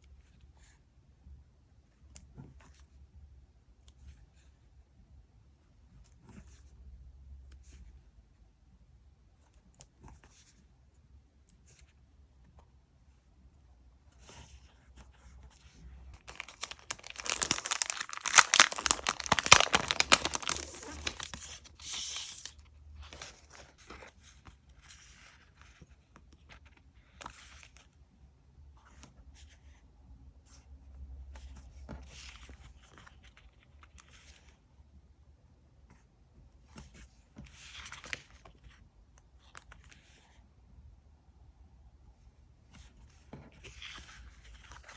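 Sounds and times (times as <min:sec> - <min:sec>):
paper crinkling and rustling: 0:15.5 - 0:27.8.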